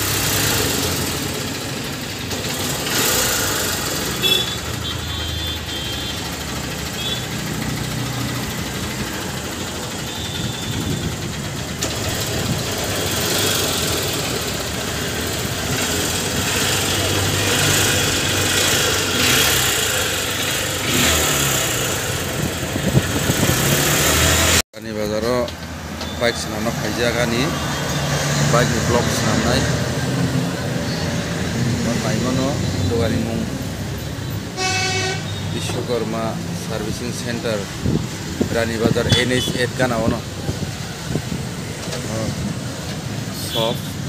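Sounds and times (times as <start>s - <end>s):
motorcycle engine running: 0.0s - 24.6s
people talking: 24.8s - 25.5s, 26.2s - 27.6s, 28.5s - 29.8s, 31.8s - 33.6s, 35.6s - 37.7s, 38.5s - 40.3s, 42.0s - 42.4s, 43.3s - 43.9s.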